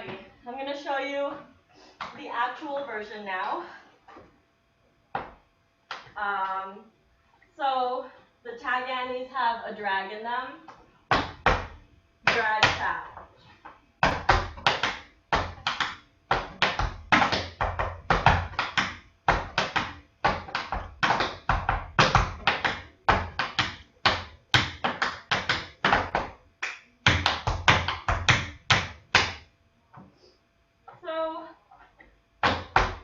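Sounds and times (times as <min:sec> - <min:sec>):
tap shoes on hard floor: 0:05.1 - 0:06.2, 0:10.7 - 0:26.4, 0:27.1 - 0:29.4, 0:32.4 - 0:33.0.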